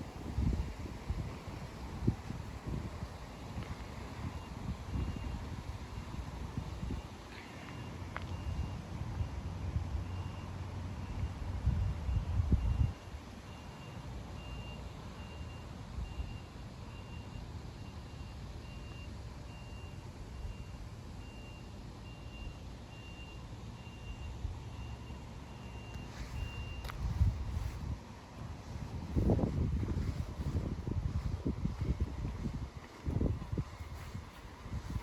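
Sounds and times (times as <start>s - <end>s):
reversing alarm beeping: 4.2s - 5.4s, 6.8s - 9.4s, 10.0s - 27.8s.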